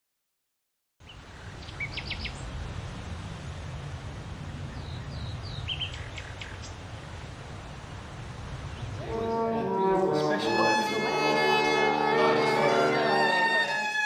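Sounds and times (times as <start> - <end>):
small birds chirping: 1.0 - 2.5, 4.8 - 6.8.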